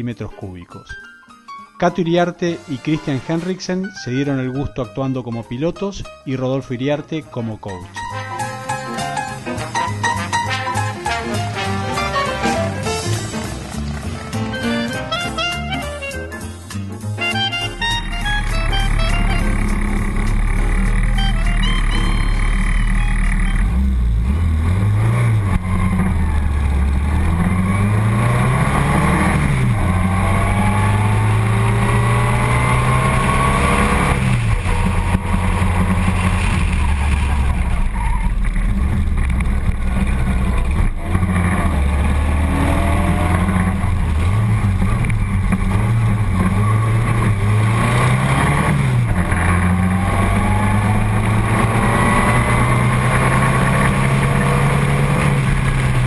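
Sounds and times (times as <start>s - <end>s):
racing car engine accelerating: 8.0s - 56.0s.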